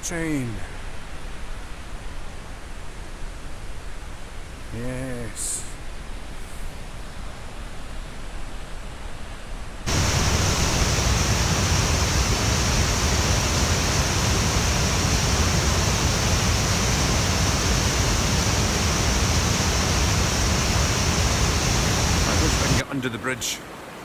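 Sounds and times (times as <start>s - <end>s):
rushing river water: 9.9s - 24.0s.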